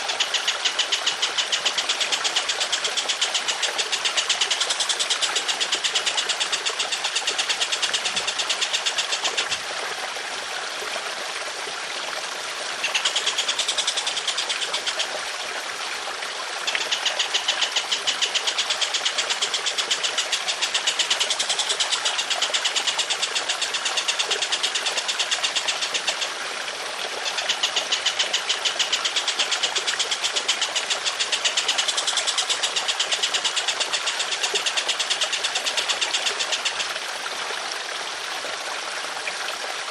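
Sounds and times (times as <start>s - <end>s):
songbird rattling trill: 0.0s - 9.5s, 12.8s - 15.1s, 16.6s - 26.3s, 27.2s - 36.9s
trickling water: 0.0s - 39.9s.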